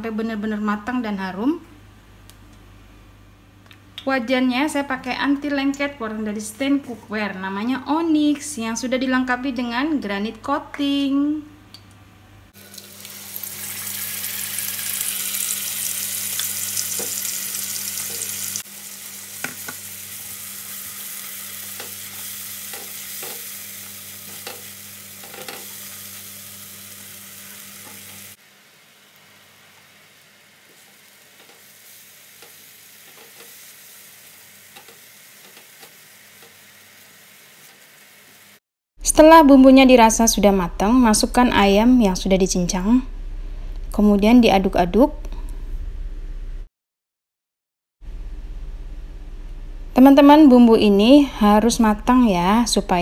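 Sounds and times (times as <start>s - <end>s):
spice paste sizzling in hot oil: 12.6s - 38.6s.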